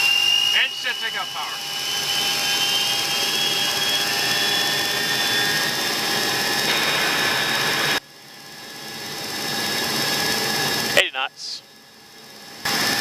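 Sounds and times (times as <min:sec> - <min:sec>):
jet engines rushing with high whine: 0:00.0 - 0:13.0.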